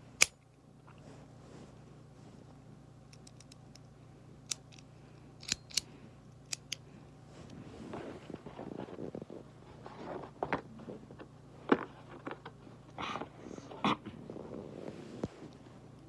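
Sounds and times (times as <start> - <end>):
small hard parts clicking: 4.5 - 6.8
rustling handling noise: 7.2 - 16.0.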